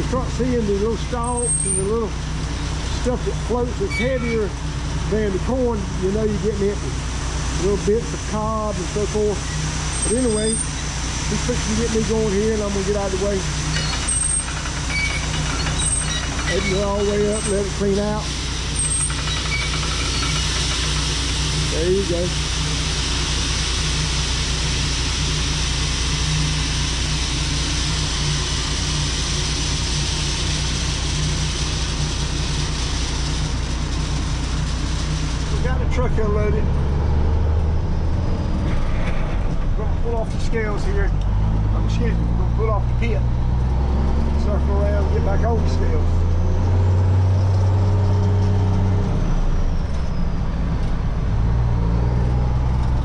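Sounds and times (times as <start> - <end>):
grain pouring with rushing hiss: 0.0 - 36.6
low engine hum: 0.0 - 53.0.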